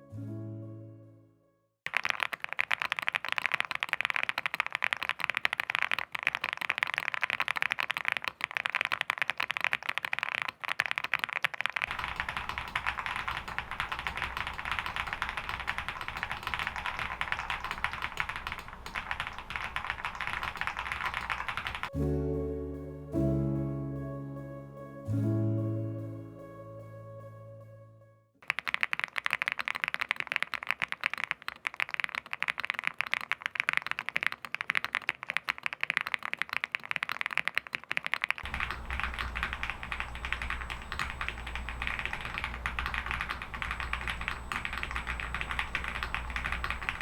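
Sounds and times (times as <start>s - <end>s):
fast keyboard typing: 1.9s - 21.9s, 28.4s - 47.0s
steady low hum: 11.9s - 21.9s, 38.5s - 47.0s.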